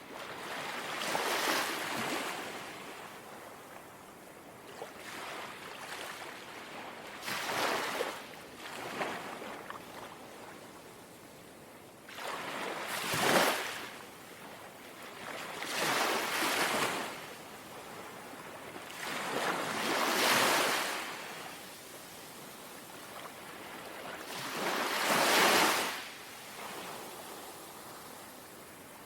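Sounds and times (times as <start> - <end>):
small sea waves lapping: 4.6 - 10.8, 12.1 - 29.0.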